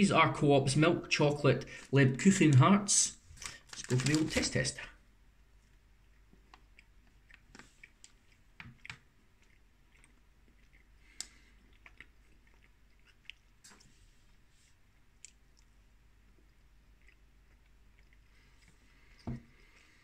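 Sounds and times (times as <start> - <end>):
chewing soft cake: 5.4 - 20.0.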